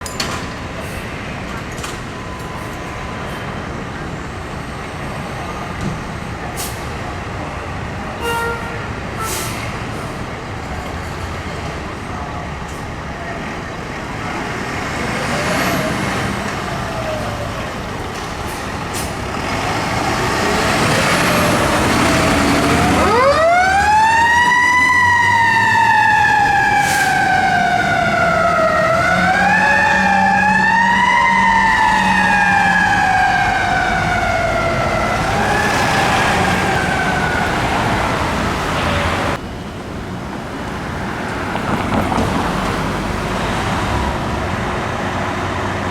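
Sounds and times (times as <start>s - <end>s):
siren winding up and down: 22.4s - 37.9s.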